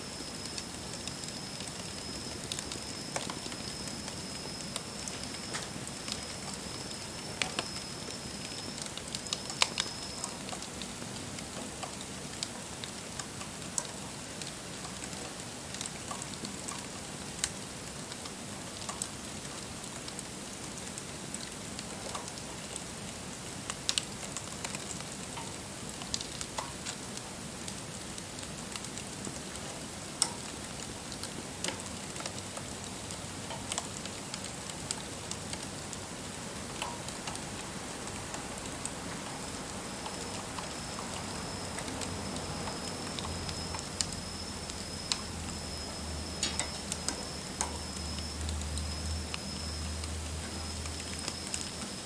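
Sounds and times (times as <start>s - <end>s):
wood fire crackling and popping: 0.1s - 52.0s
thin high whine: 40.8s - 52.0s.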